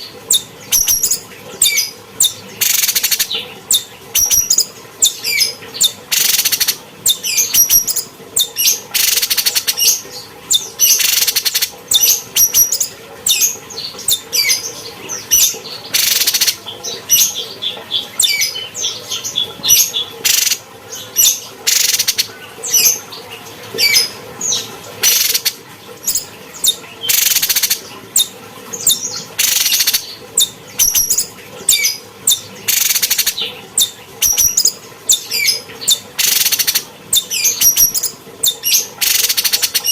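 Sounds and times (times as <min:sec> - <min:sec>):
harsh rasping bird calls: 0:00.0 - 0:23.2, 0:23.8 - 0:39.9
bird chirping and whistling: 0:00.3 - 0:13.5, 0:15.4 - 0:17.3, 0:26.1 - 0:39.9.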